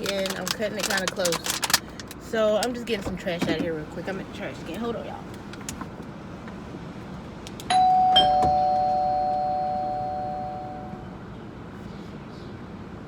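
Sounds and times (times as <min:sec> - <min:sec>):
ding-dong chime: 0:07.7 - 0:11.1.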